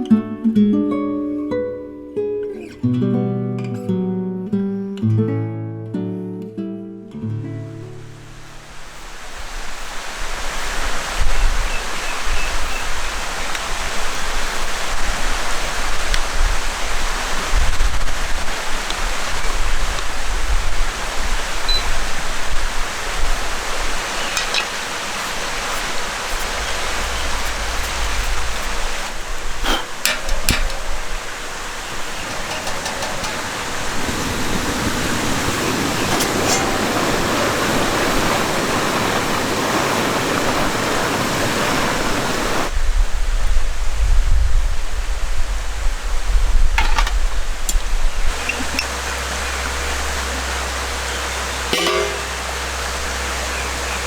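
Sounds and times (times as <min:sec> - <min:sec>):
stream water flowing: 0:08.0 - 0:42.7, 0:46.8 - 0:54.0.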